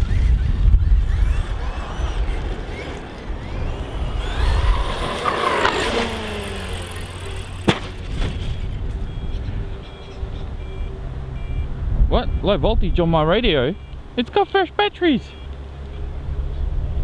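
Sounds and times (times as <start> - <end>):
electric motor whining: 0.0 - 11.4
wind buffeting microphone: 0.0 - 14.2
transmitter alarm beeping: 9.0 - 12.5.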